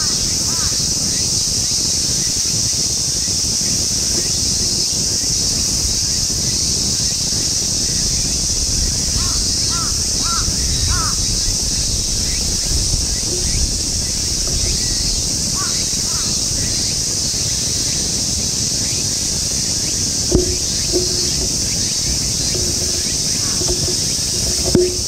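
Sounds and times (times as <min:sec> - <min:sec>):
low wind rumble: 0:00.0 - 0:25.0
bird calling with caw-like notes: 0:09.1 - 0:12.4, 0:13.3 - 0:17.0.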